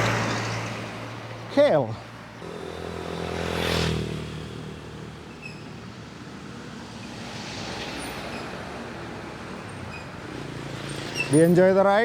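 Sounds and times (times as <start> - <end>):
small motorcycle passing by: 2.4 - 5.7.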